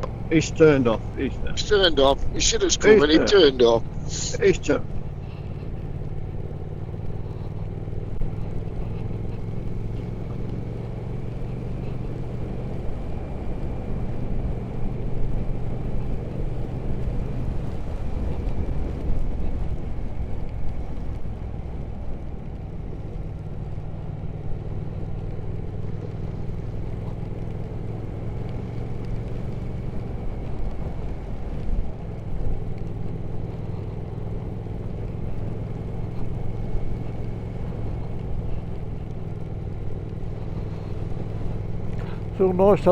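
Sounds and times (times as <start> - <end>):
wind noise: 0.0 - 23.9
motorcycle engine running: 0.0 - 42.9
road noise: 0.0 - 42.9.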